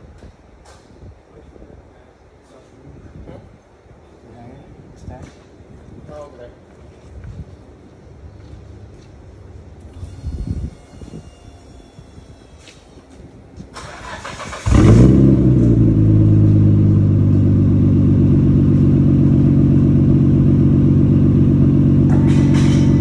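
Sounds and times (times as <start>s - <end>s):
car engine starting and idling: 13.7s - 23.0s.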